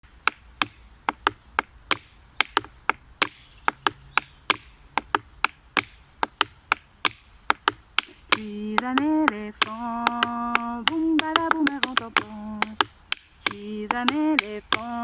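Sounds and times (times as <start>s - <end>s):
hand-played percussion claps: 8.8s - 13.3s.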